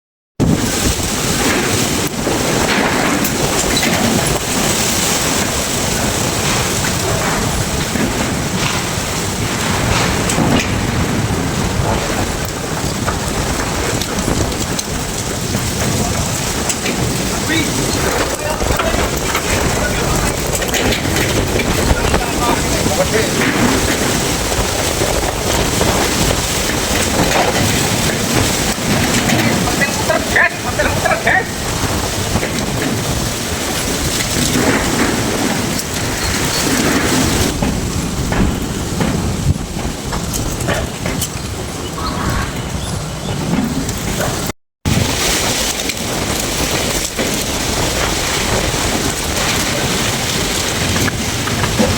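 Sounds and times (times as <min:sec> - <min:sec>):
strong wind buffeting microphone: 0:00.4 - 0:51.9.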